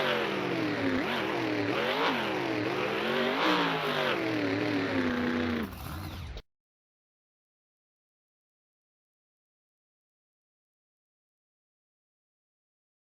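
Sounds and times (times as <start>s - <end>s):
monster truck engine revving: 0.0s - 6.4s.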